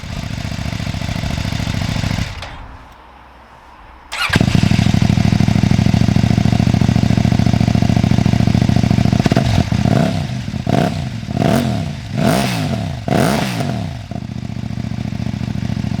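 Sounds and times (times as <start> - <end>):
motorcycle engine idling: 0.0 - 2.4, 4.2 - 16.0
engine revving: 4.1 - 6.2, 9.0 - 14.3.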